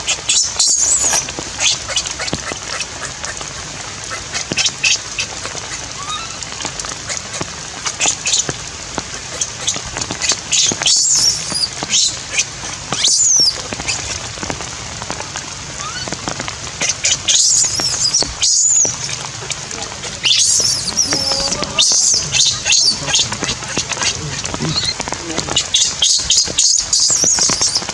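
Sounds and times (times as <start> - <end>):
rain patter: 0.0 - 27.9
baby monkey squealing: 0.3 - 3.4, 10.6 - 14.1, 17.1 - 27.9.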